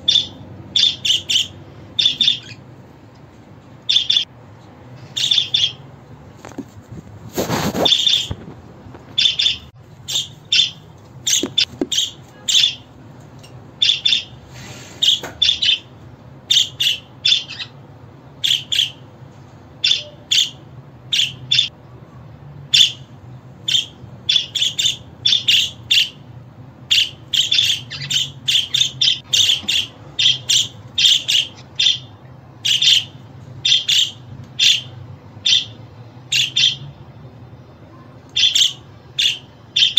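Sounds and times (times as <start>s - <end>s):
bird squawk: 0.0s - 2.6s, 3.9s - 4.3s, 5.1s - 5.8s, 7.5s - 8.4s, 9.2s - 12.8s, 13.8s - 15.9s, 16.5s - 17.8s, 18.4s - 19.0s, 19.8s - 21.7s, 23.7s - 26.2s, 26.9s - 36.9s, 38.4s - 39.9s
budgerigars chirping: 0.0s - 2.6s, 3.9s - 4.3s, 5.0s - 5.8s, 7.8s - 8.4s, 9.2s - 12.8s, 13.8s - 14.4s, 15.0s - 15.9s, 16.5s - 17.8s, 18.4s - 19.0s, 19.8s - 21.7s, 22.7s - 26.2s, 26.9s - 36.8s, 38.4s - 39.9s.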